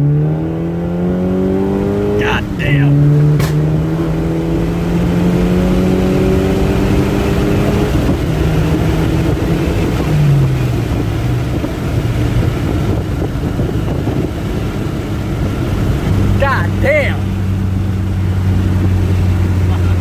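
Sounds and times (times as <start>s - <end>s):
road and wind noise: 0.0s - 20.0s
turbocharged car engine: 0.0s - 20.0s
sharp crack: 3.3s - 3.7s.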